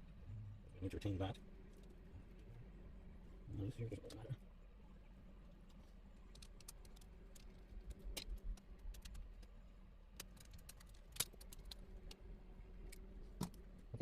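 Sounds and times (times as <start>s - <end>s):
small parts being handled: 5.7s - 12.2s.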